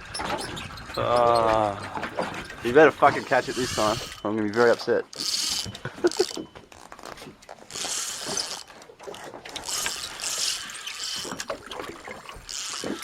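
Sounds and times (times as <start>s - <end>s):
fishing reel whirring and ratcheting: 2.5s - 11.6s, 12.3s - 13.0s.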